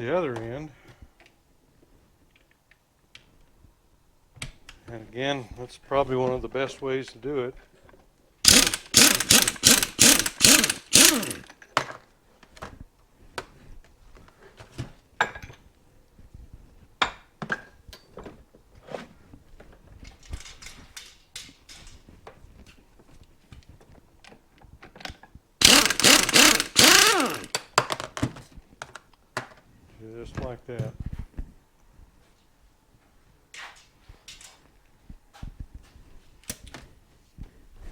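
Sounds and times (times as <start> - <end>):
pneumatic impact wrench rattling: 8.4 - 11.5, 25.6 - 27.7
clicks and knocks of parts: 8.5 - 12.0, 24.8 - 29.6.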